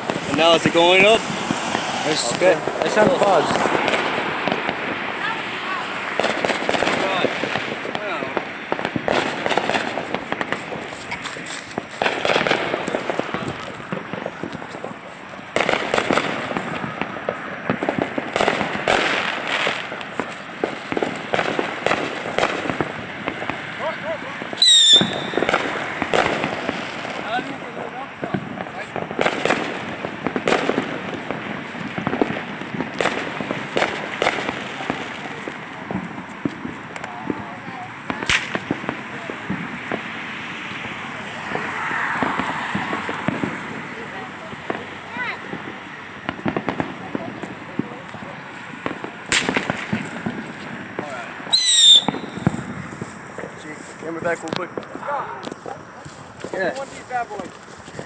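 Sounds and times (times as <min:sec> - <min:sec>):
fireworks popping and crackling: 0:00.0 - 0:58.0
loud firework bangs: 0:00.0 - 0:58.0.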